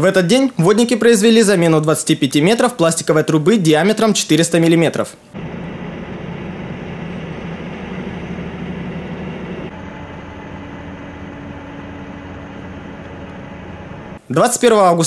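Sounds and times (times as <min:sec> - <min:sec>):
heavy engine humming: 0:05.3 - 0:14.3.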